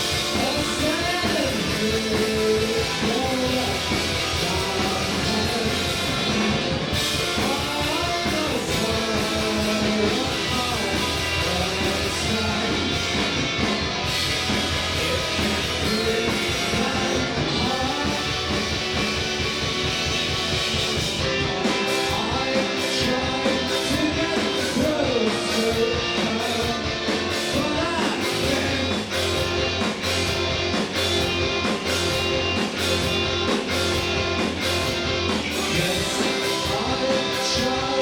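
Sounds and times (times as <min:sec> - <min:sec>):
rock band playing live: 0:00.0 - 0:38.0
person singing: 0:00.4 - 0:06.2, 0:07.3 - 0:13.2, 0:14.9 - 0:18.5, 0:21.4 - 0:29.4, 0:35.5 - 0:38.0.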